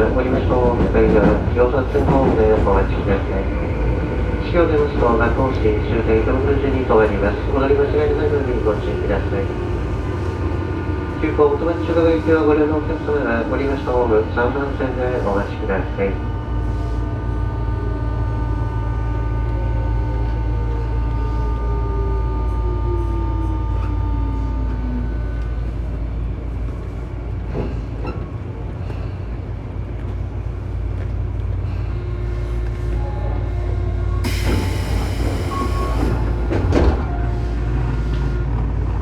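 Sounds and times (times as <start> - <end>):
train equipment humming: 0.0 - 39.0
high electric whine: 34.2 - 37.6.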